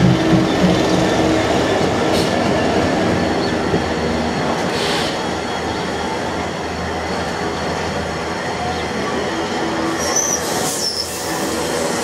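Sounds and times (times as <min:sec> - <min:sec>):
diesel locomotive engine: 0:00.0 - 0:12.0
train wagons rumbling on rails: 0:00.0 - 0:12.0
high-pitched wheel squeals: 0:09.9 - 0:11.8.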